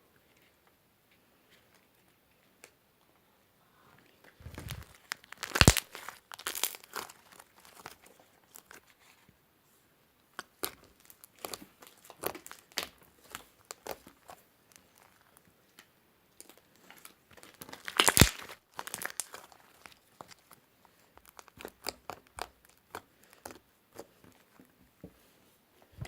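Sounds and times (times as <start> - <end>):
slime crackling and popping: 4.4 - 8.8, 10.3 - 24.4.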